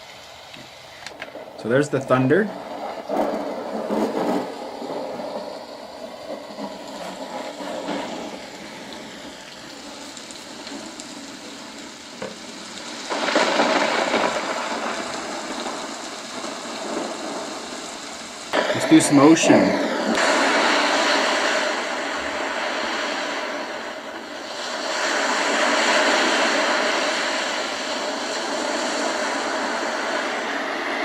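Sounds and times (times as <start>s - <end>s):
thunder recording from small speaker: 1.2s - 24.5s.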